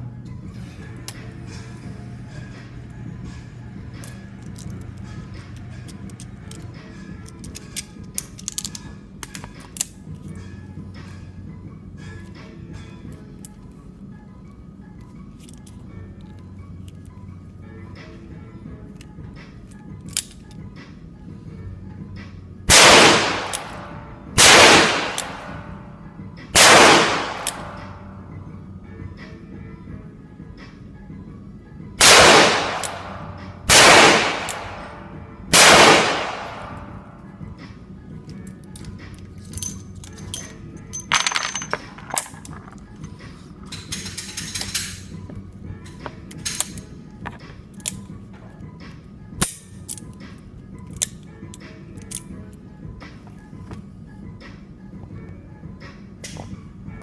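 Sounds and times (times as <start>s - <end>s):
low steady hum: 0.0s - 57.0s
revolver shots with echo: 22.7s - 25.7s, 26.6s - 28.0s, 32.0s - 37.0s.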